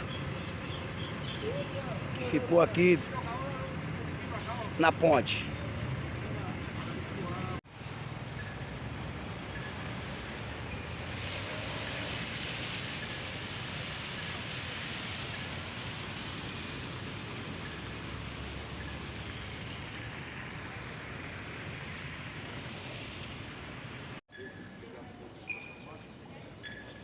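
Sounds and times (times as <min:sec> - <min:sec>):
river rushing: 0:00.0 - 0:05.6, 0:07.2 - 0:24.2.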